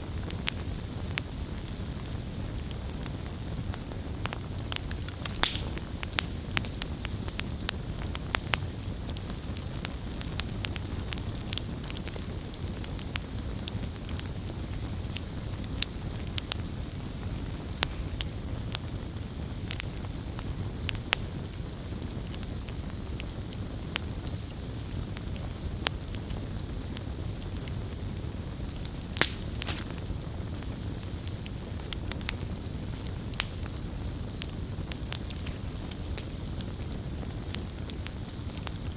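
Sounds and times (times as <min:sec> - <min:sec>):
campfire popping and snapping: 0:00.0 - 0:38.9
campfire rumbling: 0:00.0 - 0:38.9.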